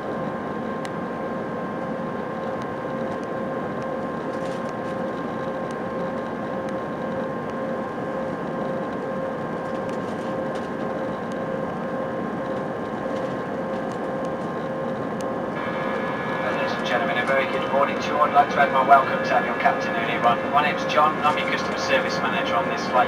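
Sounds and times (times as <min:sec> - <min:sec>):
turbofan whining tones: 0:11.5 - 0:23.0
rush of air and engine noise: 0:13.0 - 0:23.0.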